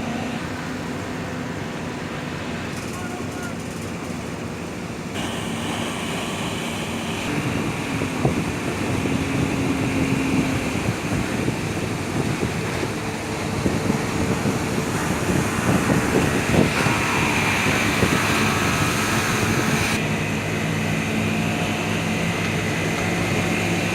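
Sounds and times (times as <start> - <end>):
motorboat engine: 0.0 - 23.9
water rushing: 0.0 - 23.9
wind buffeting microphone: 5.1 - 23.9.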